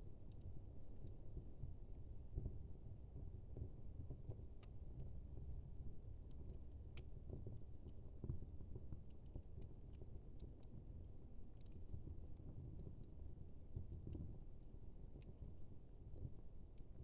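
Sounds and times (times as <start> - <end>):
low rumble of flame: 0.0 - 17.0
fire crackling and popping: 6.3 - 17.0.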